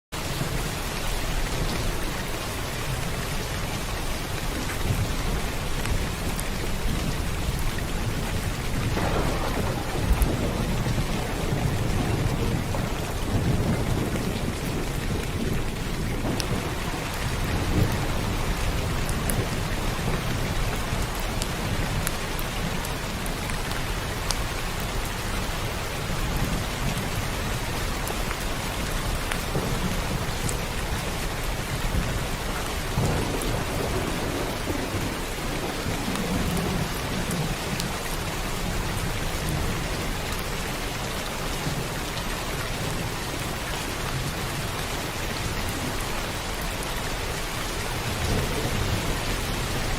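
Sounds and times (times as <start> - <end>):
heavy rain falling: 0.2 - 49.9
low thunder rumbling: 1.2 - 23.4, 24.7 - 41.0, 45.4 - 49.9
rain drop ticks: 4.3 - 25.2, 26.3 - 38.2.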